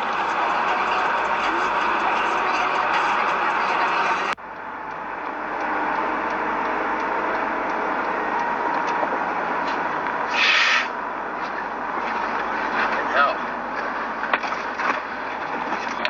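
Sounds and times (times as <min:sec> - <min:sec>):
vehicle and road noise: 0:00.0 - 0:16.0
short loud hiss: 0:10.3 - 0:10.9.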